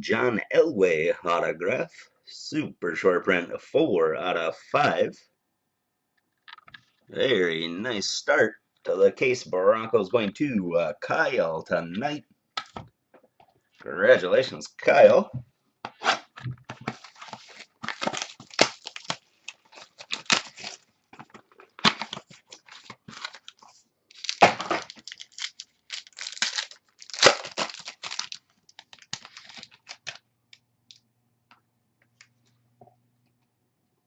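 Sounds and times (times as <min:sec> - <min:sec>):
card packs tearing: 0:16.0 - 0:20.9, 0:21.6 - 0:30.2
wrappers crinkling: 0:16.9 - 0:30.2.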